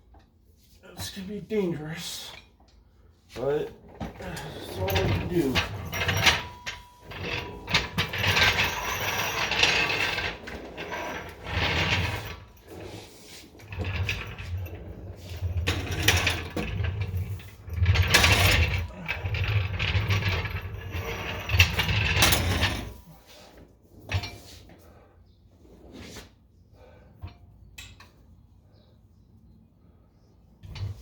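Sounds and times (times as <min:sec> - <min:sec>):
hand tools clicking and clattering: 0:13.7 - 0:23.0.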